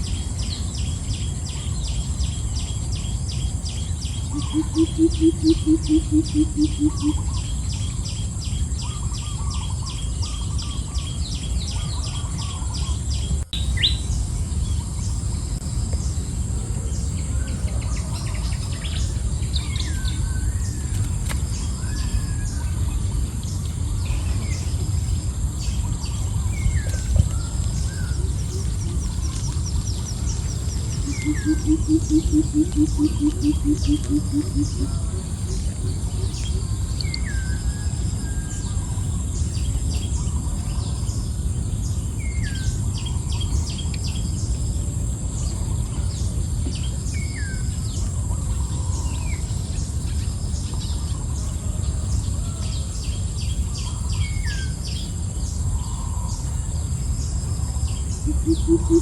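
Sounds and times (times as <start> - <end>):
high insect whine: 0.0 - 59.0
low rumble: 0.0 - 59.0
low rapidly pulsing call: 4.3 - 7.4, 31.0 - 36.8, 58.2 - 59.0
high bird chirps: 31.0 - 34.9.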